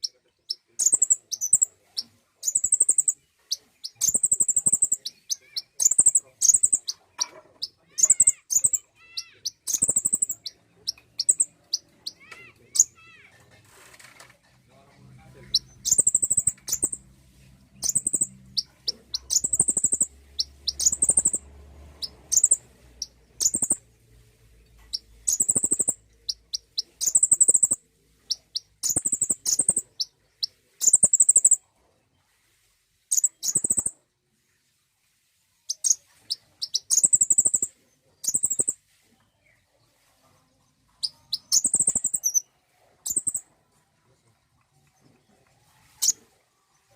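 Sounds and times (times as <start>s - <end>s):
sunbird singing high ticks and trill: 0.0s - 1.7s, 2.4s - 3.2s, 3.8s - 7.0s, 8.0s - 12.2s, 15.9s - 17.0s, 17.8s - 18.3s, 19.1s - 21.4s, 23.4s - 23.8s, 25.3s - 27.8s, 36.6s - 38.8s, 41.0s - 42.4s.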